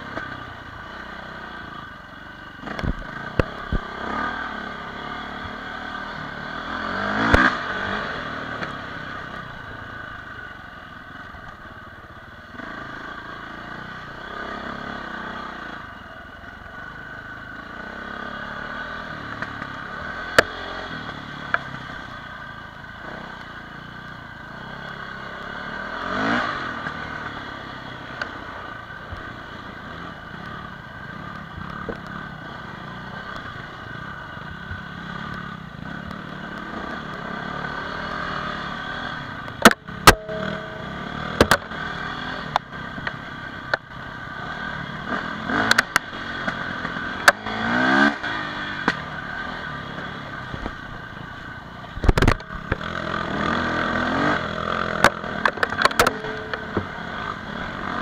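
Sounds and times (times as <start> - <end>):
dirt bike engine revving: 2.6 - 9.2, 24.6 - 28.5, 35.0 - 50.6, 52.2 - 58.0
sharp knocks and clatters: 39.6 - 43.8, 55.1 - 57.0.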